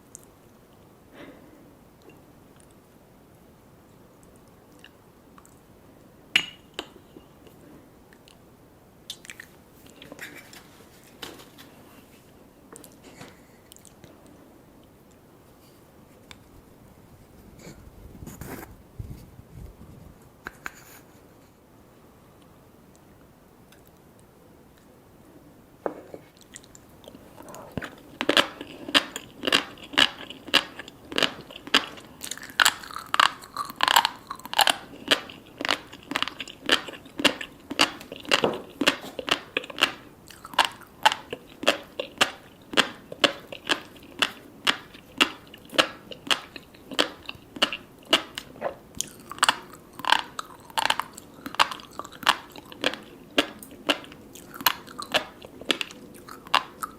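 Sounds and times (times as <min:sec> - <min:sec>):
crunchy chewing: 0:26.2 - 0:56.9.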